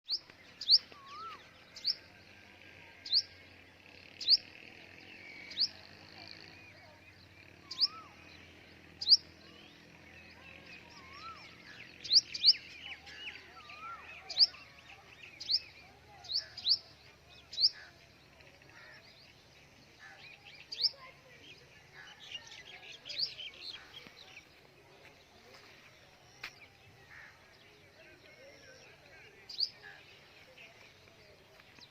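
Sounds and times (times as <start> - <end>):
birds twittering: 0.1 - 31.9
bird sharp high chirp: 7.7 - 8.2.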